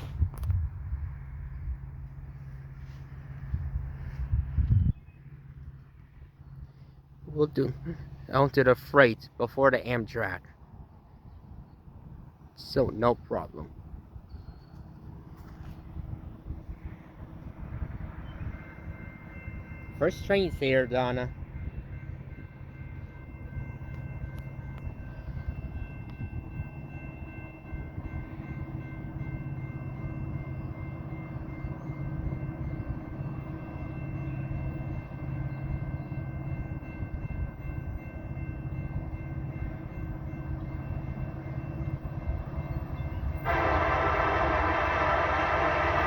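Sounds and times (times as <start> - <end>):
locomotive air horn: 43.4 - 46.0.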